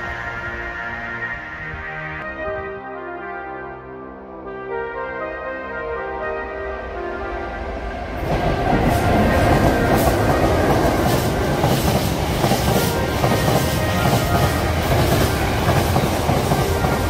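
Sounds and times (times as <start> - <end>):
freight train rumbling: 0.0 - 2.6, 6.2 - 17.0.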